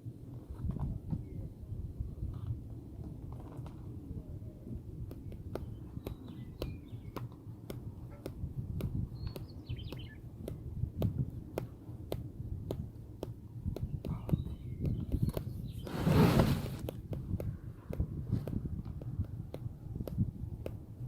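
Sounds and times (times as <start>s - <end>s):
small bird chirping: 5.6s - 7.3s, 9.0s - 10.3s.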